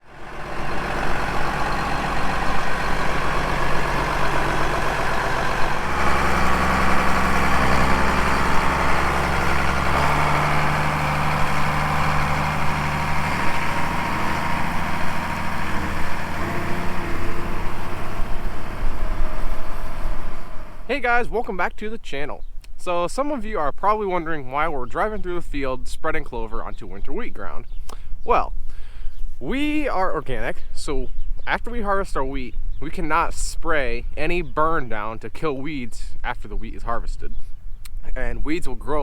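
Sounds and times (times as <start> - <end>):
farm vehicle engine running: 0.0 - 21.3.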